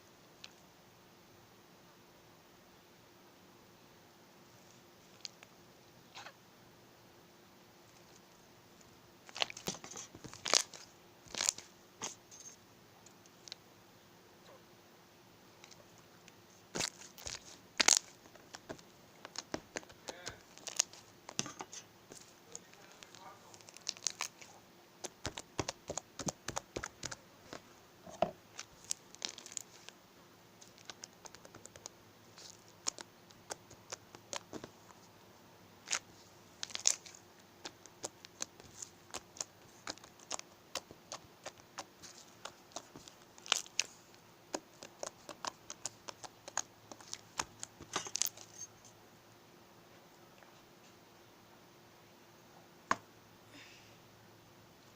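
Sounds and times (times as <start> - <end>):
slime clicking and popping: 25.0 - 27.2, 36.6 - 43.9, 44.5 - 48.4.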